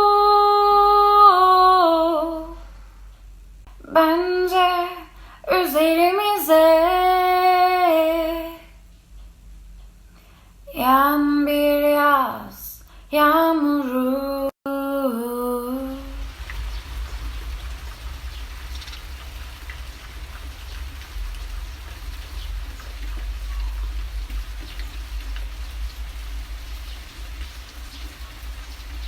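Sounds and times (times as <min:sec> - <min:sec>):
low rumble: 0:15.6 - 0:29.0
rain pattering: 0:15.6 - 0:29.0.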